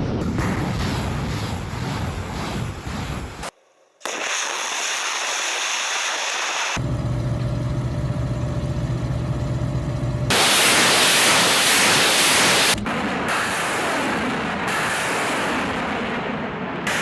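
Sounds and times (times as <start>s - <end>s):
heavy vehicle engine humming: 6.8s - 10.5s.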